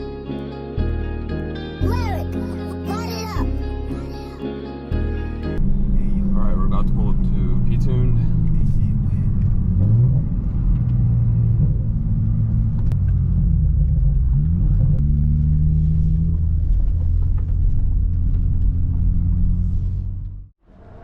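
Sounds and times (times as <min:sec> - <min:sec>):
car engine droning: 0:05.6 - 0:21.0.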